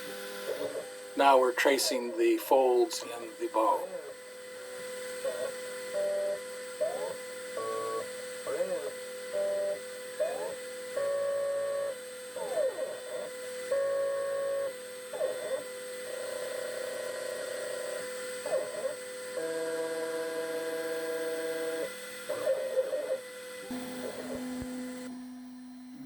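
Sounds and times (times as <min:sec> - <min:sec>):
stepper motors singing tones: 0:00.0 - 0:12.6
spindle whining: 0:00.0 - 0:26.0.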